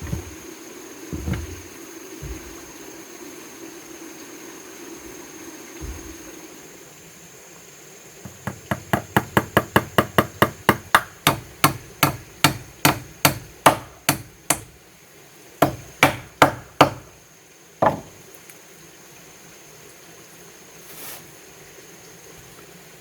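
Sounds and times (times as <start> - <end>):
hand tool striking wood: 0.0 - 0.4, 1.1 - 2.7, 8.3 - 14.8, 15.6 - 17.2, 17.8 - 18.2.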